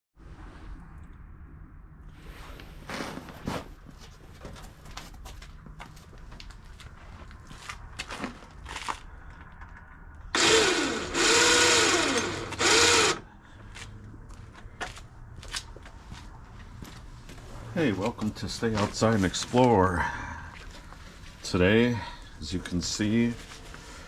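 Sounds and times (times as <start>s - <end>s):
small electric motor whirring: 10.3s - 13.2s.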